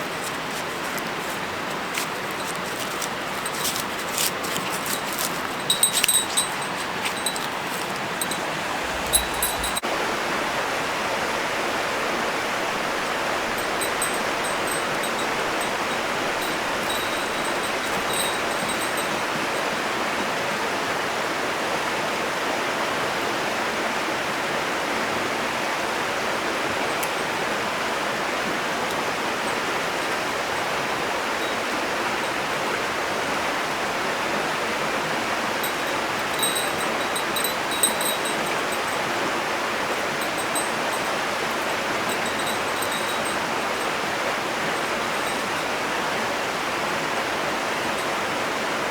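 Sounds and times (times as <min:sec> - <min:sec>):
faint high tinkling: 0:00.0 - 0:09.9, 0:12.8 - 0:20.7, 0:28.7 - 0:33.3, 0:35.1 - 0:48.8
flowing stream water: 0:00.0 - 0:48.9.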